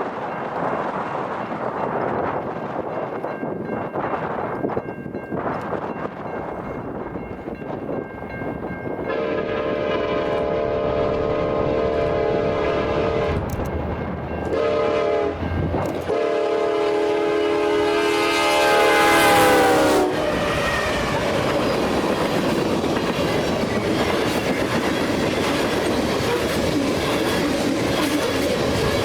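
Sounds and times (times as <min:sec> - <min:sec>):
freight train rumble and clatter: 0:00.0 - 0:29.0
locomotive air horn: 0:09.1 - 0:13.4, 0:14.5 - 0:21.5.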